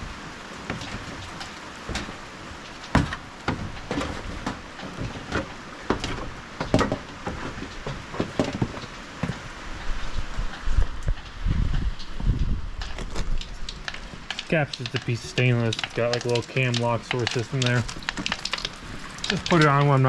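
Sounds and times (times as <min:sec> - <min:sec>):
rain falling: 0:00.0 - 0:20.0
metal knocks and taps: 0:02.9 - 0:09.4.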